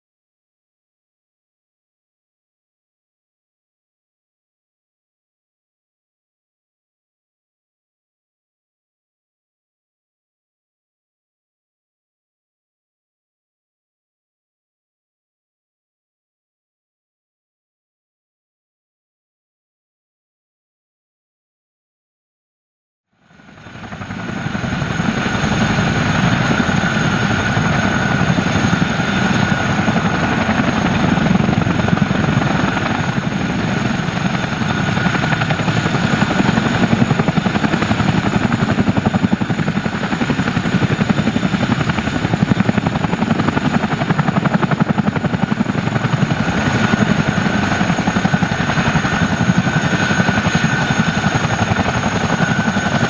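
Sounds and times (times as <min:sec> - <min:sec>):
helicopter rotor and turbine: 0:23.1 - 0:53.0
constant high whine: 0:23.2 - 0:53.0.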